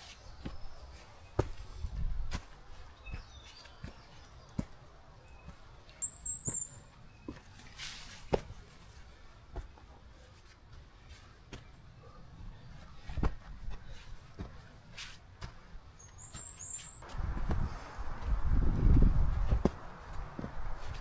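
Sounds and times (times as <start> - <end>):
footsteps on forest trail: 0.0 - 11.7, 12.6 - 21.0
high chirp: 5.3 - 7.3, 16.0 - 17.0.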